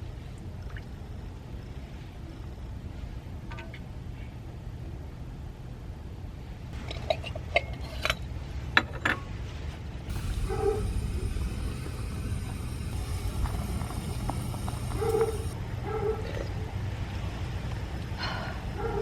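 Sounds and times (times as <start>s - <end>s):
steady hiss: 10.1s - 15.6s.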